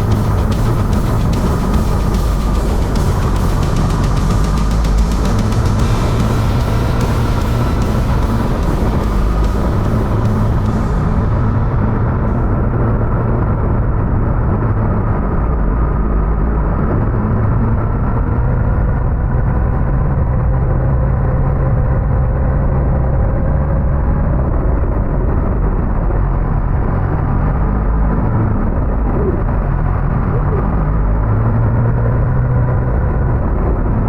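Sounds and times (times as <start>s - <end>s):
motorcycle engine running: 0.0s - 13.3s
road and wind noise: 0.0s - 34.0s.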